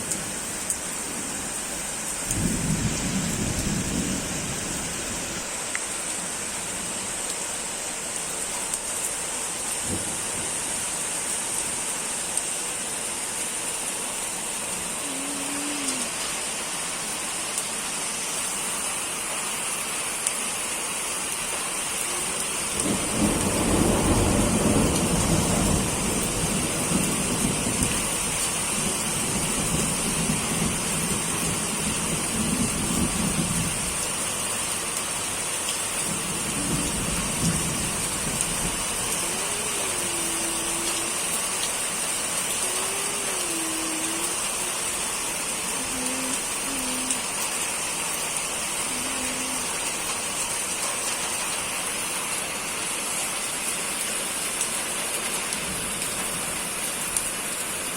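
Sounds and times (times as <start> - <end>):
steady rain falling: 0.0 - 57.9
thunder rumbling: 2.3 - 5.2, 22.7 - 33.9, 36.1 - 41.2.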